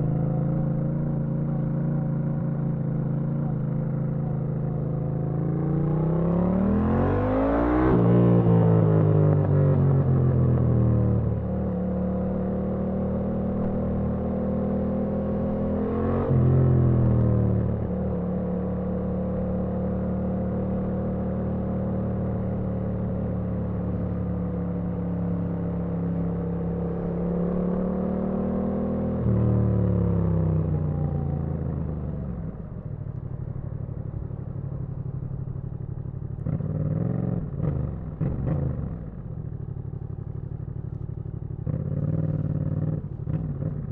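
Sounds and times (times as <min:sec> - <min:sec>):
motorcycle engine revving: 0:34.5 - 0:43.9.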